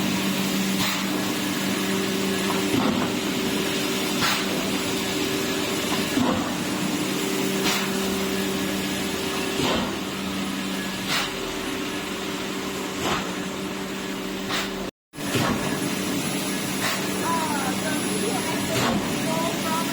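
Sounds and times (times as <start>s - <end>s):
machinery humming: 15.2s - 19.9s.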